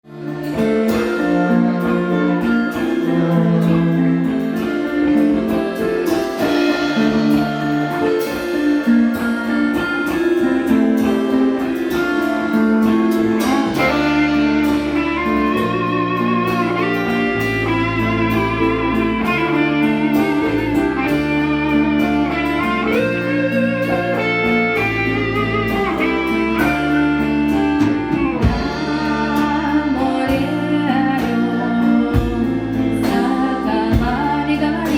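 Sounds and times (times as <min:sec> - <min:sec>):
deep bass part: 0:00.0 - 0:34.9
plucked strings: 0:00.1 - 0:34.9.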